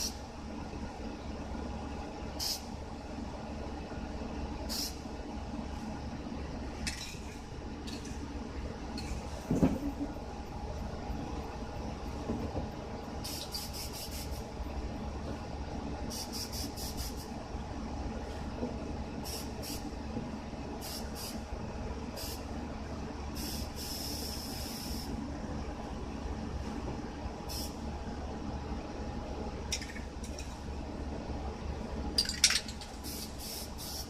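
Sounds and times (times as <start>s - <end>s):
low steady hum: 0.0s - 34.0s
aerosol spray can hissing: 13.3s - 14.4s, 33.1s - 34.0s.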